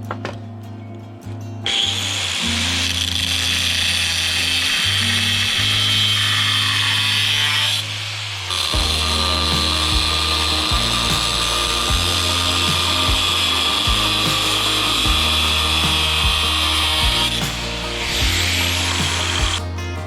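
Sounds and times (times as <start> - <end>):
power tool whining: 1.7 - 20.0
background music with beat: 8.7 - 20.0.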